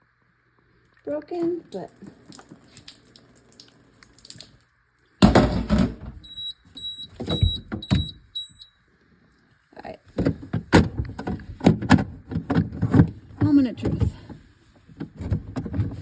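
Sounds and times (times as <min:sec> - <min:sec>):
refrigerator beeping: 0:05.3 - 0:08.8.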